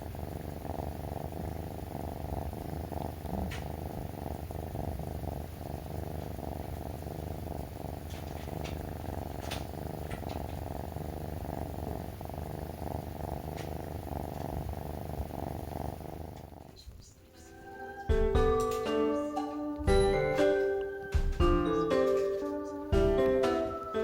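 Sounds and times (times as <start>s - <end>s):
kitten purring: 0.0s - 24.0s
faint clicks and rustles: 3.2s - 4.6s, 7.9s - 11.0s, 13.4s - 14.6s.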